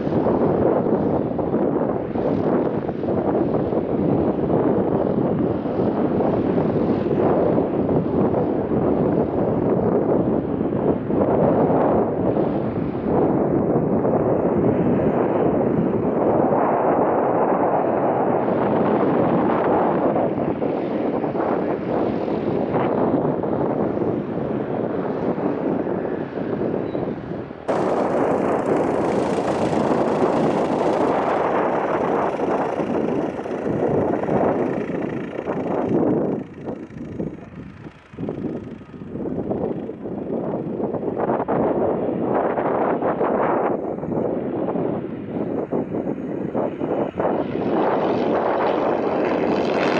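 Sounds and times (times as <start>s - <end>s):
wind buffeting microphone: 0.0s - 49.9s
aircraft engine rushing: 20.4s - 42.3s, 45.3s - 49.9s.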